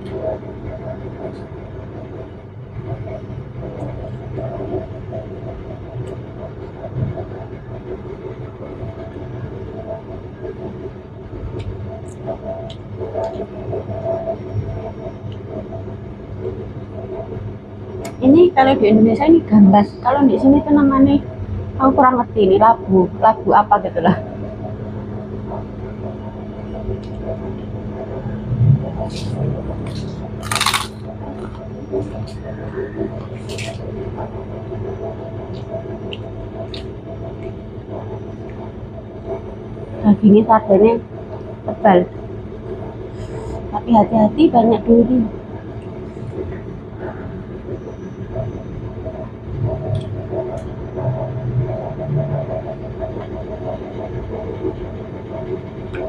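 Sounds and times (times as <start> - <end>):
low background hum: 0.0 - 56.0
person chewing: 29.1 - 32.5, 33.2 - 33.9.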